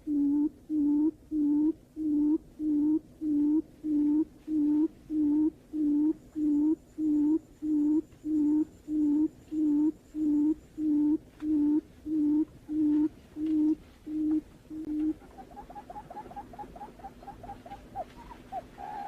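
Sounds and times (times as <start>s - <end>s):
bird low hooting notes: 0.0s - 19.0s.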